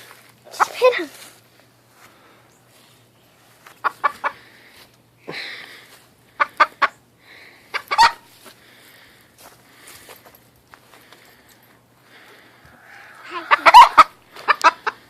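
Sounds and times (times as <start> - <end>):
chicken clucking: 3.7 - 4.4, 6.4 - 7.0, 7.7 - 8.2, 12.6 - 15.0.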